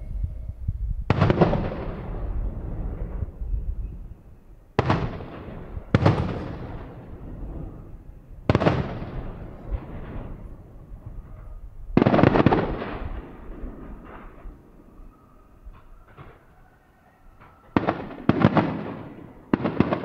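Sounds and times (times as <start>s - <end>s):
fireworks bangs with echo: 1.1s - 3.4s, 4.8s - 14.8s, 17.4s - 20.0s.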